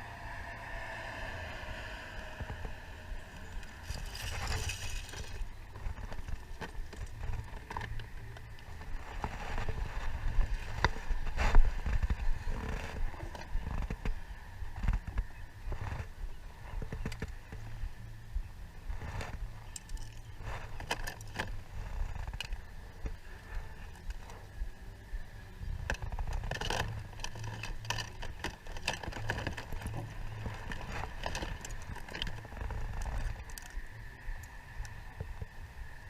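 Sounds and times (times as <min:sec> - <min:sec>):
low rumble: 0:00.0 - 0:36.0
plastic toys rattling: 0:03.5 - 0:05.5, 0:26.4 - 0:33.8.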